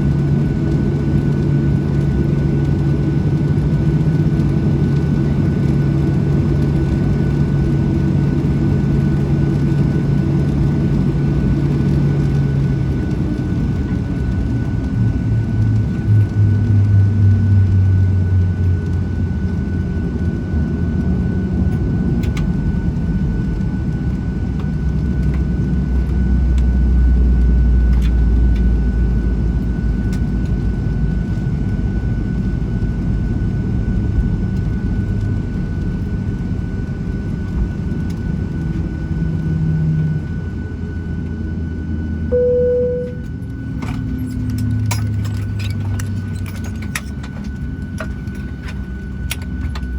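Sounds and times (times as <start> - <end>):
airplane cabin low rumble: 0.0 - 49.9
thin steady whine: 42.1 - 45.7.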